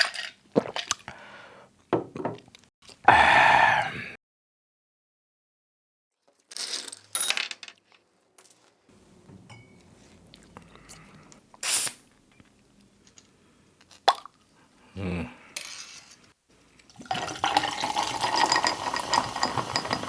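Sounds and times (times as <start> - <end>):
glass bottle clinks and knocks: 9.5 - 9.8, 18.2 - 20.0
glassware clatter: 17.1 - 20.0.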